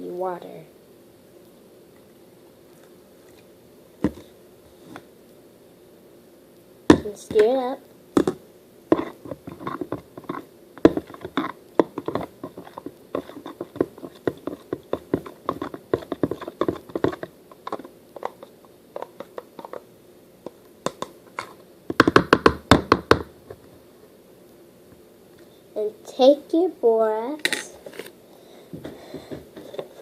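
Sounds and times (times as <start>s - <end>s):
utensil scraping a bowl: 8.9s - 19.8s.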